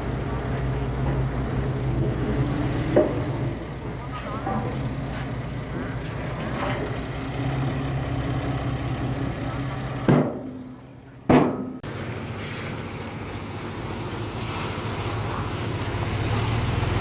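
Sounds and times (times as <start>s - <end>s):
heavy machinery diesel engine: 0.0s - 17.0s
sharp loud knocks: 10.1s - 10.6s, 11.3s - 11.8s.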